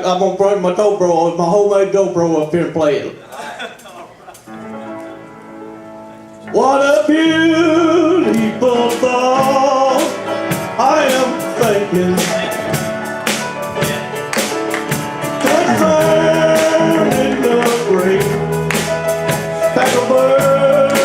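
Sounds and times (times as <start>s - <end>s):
man singing country gospel: 6.5s - 12.9s, 15.4s - 21.0s
bass notes: 10.5s - 21.0s.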